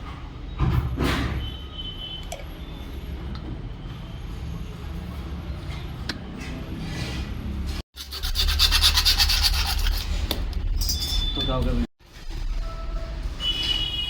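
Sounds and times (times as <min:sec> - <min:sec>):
fast rhythmic rasping: 0:08.0 - 0:10.1.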